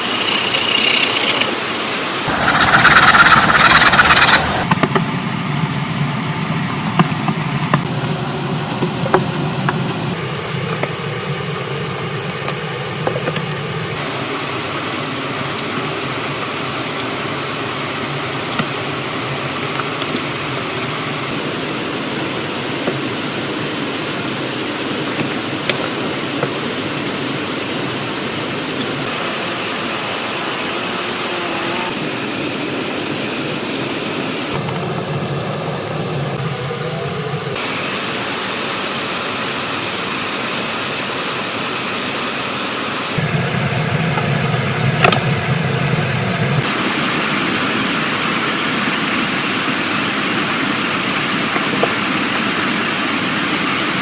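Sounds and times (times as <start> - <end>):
steady rushing noise: 0.0 - 6.5.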